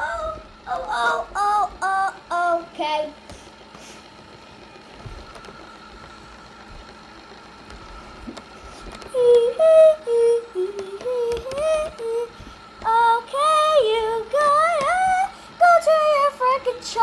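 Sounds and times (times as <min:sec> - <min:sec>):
robot vacuum motor whine: 0:03.7 - 0:17.0.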